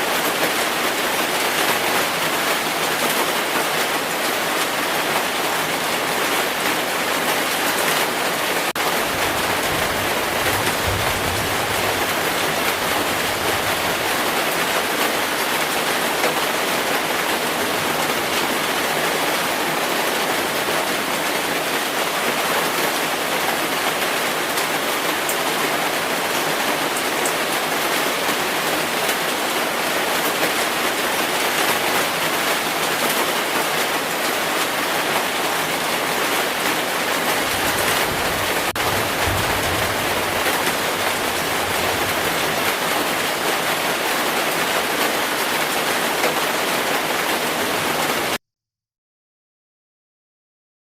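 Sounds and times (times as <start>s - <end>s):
heavy rain falling: 0.0s - 48.4s
distant thunder rumble: 8.8s - 14.4s, 37.3s - 43.0s.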